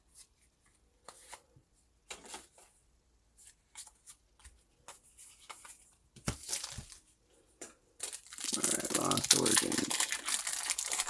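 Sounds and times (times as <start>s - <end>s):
card rustle and thump: 5.3s - 7.0s.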